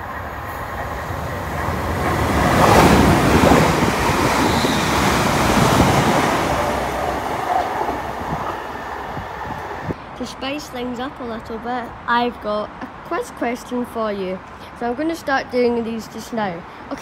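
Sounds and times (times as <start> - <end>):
wind on microphone: 0.0 - 10.0
train passing at speed: 0.0 - 12.1.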